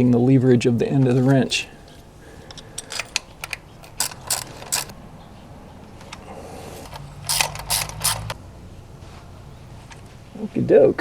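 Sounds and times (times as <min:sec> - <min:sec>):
wrench clicking: 0:01.4 - 0:05.0, 0:06.0 - 0:08.4.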